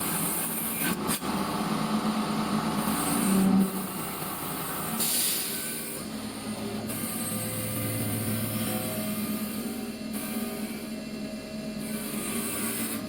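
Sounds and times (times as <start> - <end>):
steady machine hum: 0.0 - 13.0
wood lathe tools cutting: 11.8 - 13.0.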